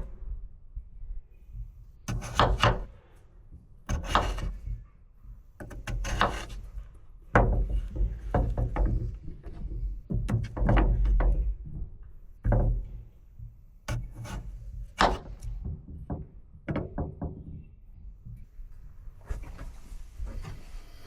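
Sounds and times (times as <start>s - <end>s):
knocking and clattering: 7.3s - 14.1s, 15.0s - 18.6s.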